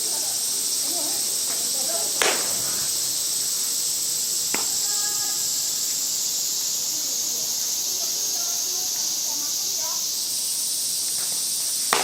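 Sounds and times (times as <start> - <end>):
high-pitched hiss: 0.0 - 12.0
bat hitting softball: 2.2 - 2.8, 4.5 - 4.8.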